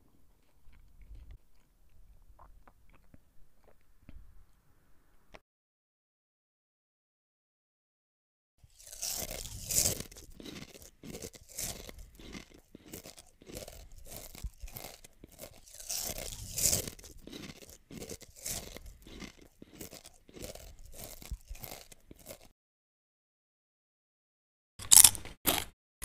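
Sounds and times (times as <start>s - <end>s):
chewing crunchy food: 0.3s - 4.2s, 8.6s - 22.6s, 24.8s - 25.7s.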